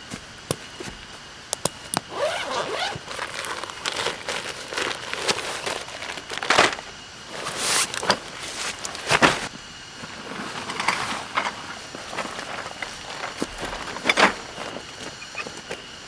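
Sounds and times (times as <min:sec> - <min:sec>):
rustling and crinkling gear: 0:01.7 - 0:16.0.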